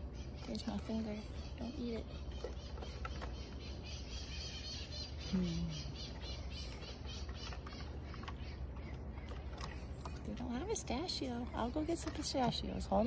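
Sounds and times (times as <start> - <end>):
birds chirping: 0.0 - 13.0
person humming: 5.2 - 5.9.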